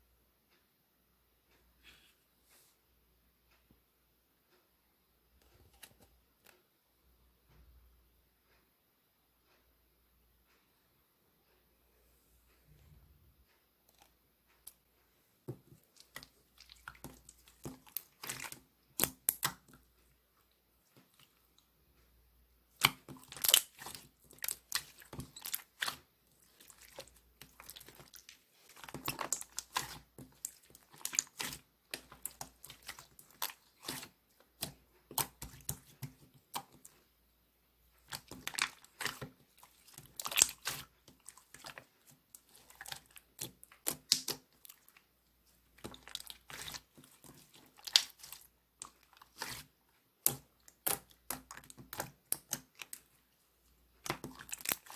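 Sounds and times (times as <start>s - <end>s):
slime squished by hand: 15.9s - 19.8s, 22.7s - 37.0s, 38.0s - 53.2s, 54.0s - 54.9s.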